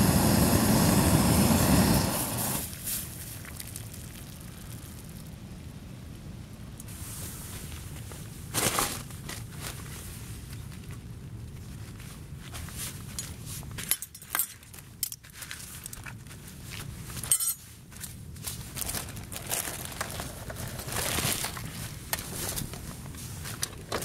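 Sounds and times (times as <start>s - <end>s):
nylon fabric rustling and crinkling: 6.9s - 24.0s.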